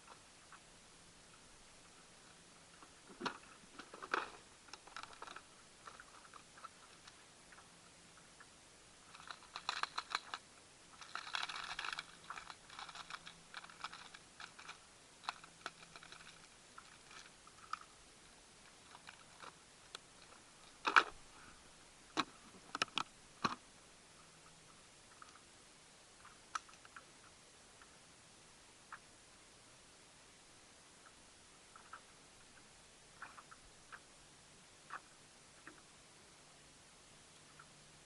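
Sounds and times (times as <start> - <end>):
clicks and crackling rattles: 1.3 - 21.2, 22.1 - 23.6, 26.2 - 27.9.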